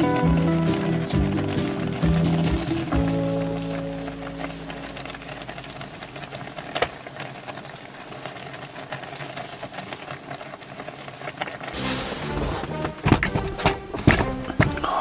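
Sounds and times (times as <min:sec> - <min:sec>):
background music: 0:00.0 - 0:05.6, 0:11.8 - 0:15.0
hot-pot simmering hiss: 0:00.0 - 0:15.0
small crackles: 0:00.0 - 0:15.0.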